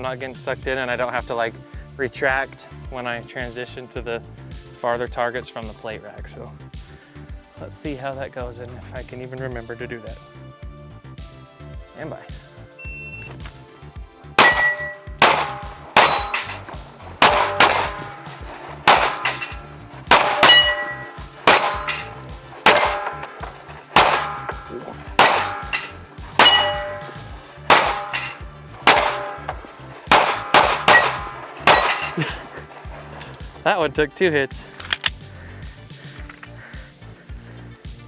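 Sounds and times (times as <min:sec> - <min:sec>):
rapid gunshots: 0:14.4 - 0:33.2
steel plates clanging: 0:14.4 - 0:33.5.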